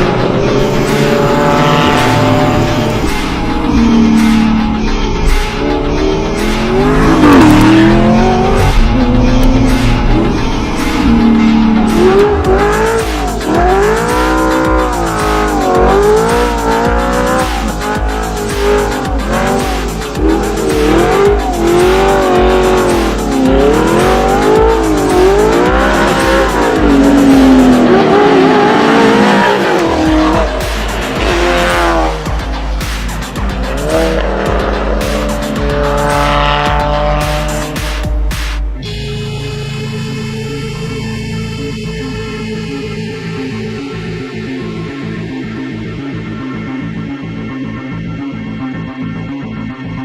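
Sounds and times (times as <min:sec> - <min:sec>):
car engine revving: 0:00.0 - 0:39.0
electronic music with steady beat: 0:00.0 - 0:50.0.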